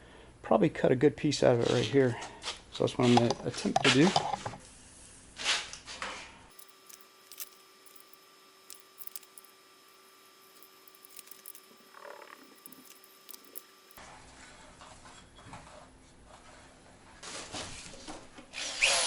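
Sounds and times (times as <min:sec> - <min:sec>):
faint high-pitched hum: 0:06.5 - 0:14.0
small clicks and handling noises: 0:06.5 - 0:14.0.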